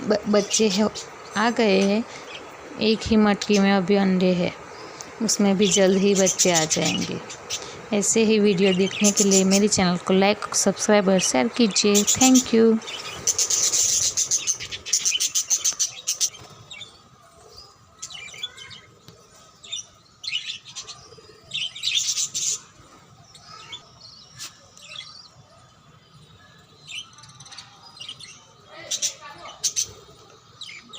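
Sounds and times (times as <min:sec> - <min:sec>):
budgerigars chirping: 0:08.6 - 0:10.0, 0:11.6 - 0:17.0.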